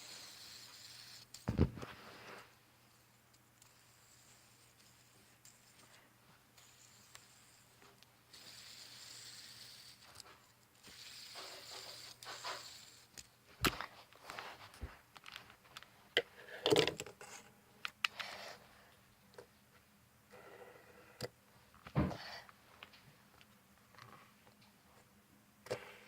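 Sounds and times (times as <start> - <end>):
fidget spinner whirring: 0.0 - 13.9.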